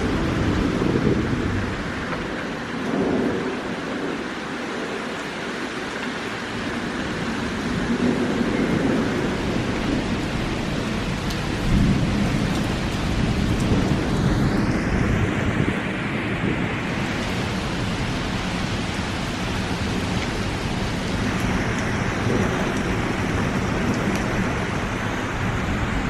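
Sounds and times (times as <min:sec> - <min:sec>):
low rumble: 0:00.0 - 0:03.4
heavy rain falling: 0:00.0 - 0:26.0.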